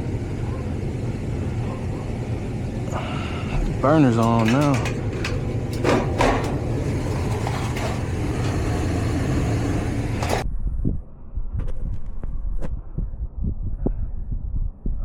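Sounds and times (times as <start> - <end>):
furnace burner and blower rushing: 0.0 - 10.4
furnace clicks: 2.9 - 10.4.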